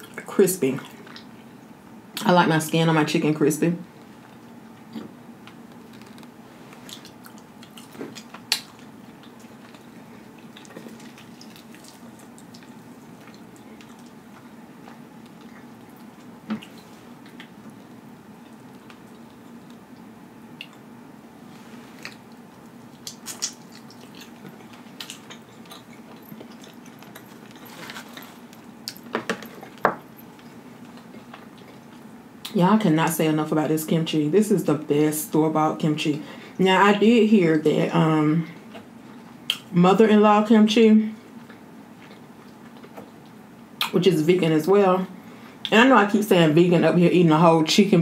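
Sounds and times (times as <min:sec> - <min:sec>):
low steady hum: 0:00.0 - 0:48.0
crunching and chewing: 0:04.0 - 0:21.0, 0:21.6 - 0:32.2, 0:41.3 - 0:43.4.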